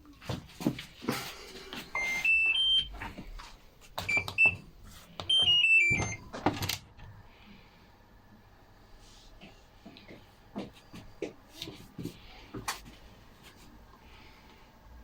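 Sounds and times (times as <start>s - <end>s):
washing machine beeping: 1.8s - 3.4s, 4.0s - 6.9s.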